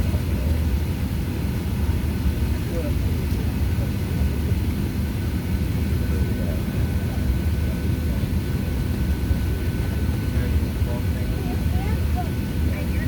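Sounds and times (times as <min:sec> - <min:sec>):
low rumble of airplane cabin: 0:00.0 - 0:13.0.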